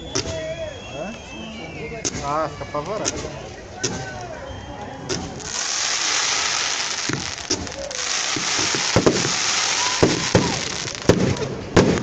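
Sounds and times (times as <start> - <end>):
fireworks cracks and pops: 5.1 - 12.0
fireworks hissing: 5.1 - 12.0.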